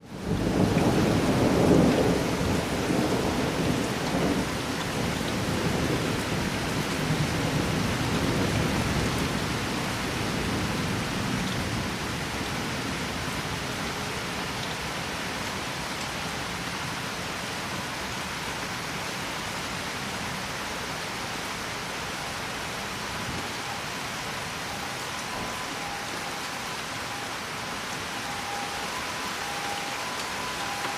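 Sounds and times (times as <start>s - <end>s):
rain hissing: 20.0s - 30.9s.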